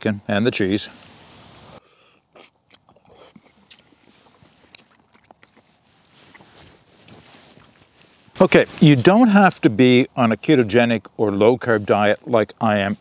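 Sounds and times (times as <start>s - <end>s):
man chewing: 1.8s - 8.2s.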